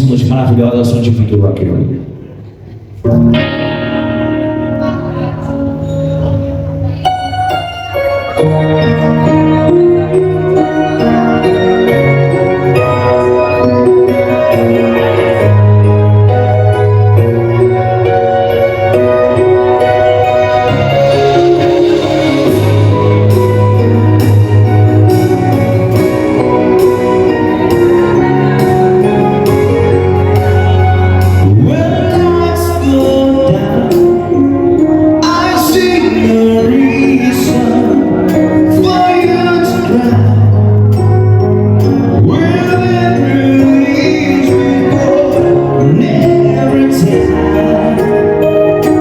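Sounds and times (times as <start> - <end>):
live rock band playing: 2.6 - 49.0
lead vocal singing: 31.4 - 34.6, 35.2 - 40.7, 42.2 - 49.0.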